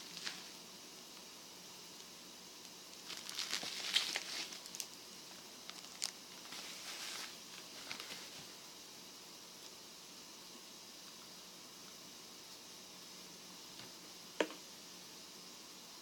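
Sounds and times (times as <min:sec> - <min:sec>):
crinkly rustling: 0:00.0 - 0:00.6, 0:02.9 - 0:05.0, 0:05.6 - 0:08.6.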